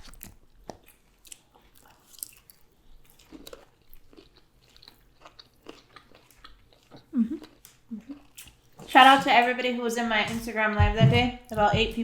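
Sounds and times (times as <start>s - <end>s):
person chewing food: 0.0s - 9.0s.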